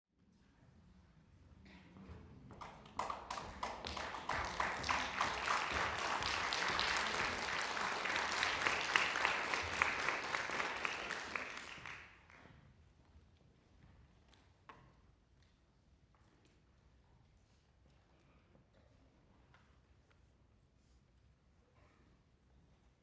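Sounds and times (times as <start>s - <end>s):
audience applauding: 2.9s - 12.3s.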